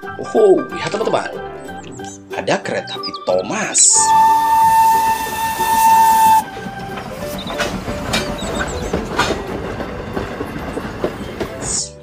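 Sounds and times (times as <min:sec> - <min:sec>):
high whistle tone: 0:03.9 - 0:06.6
train wheels clattering: 0:04.1 - 0:11.9.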